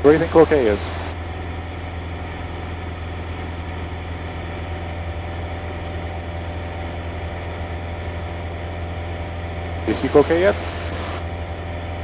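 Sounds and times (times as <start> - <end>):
airplane engine and propeller droning: 0.0 - 12.0.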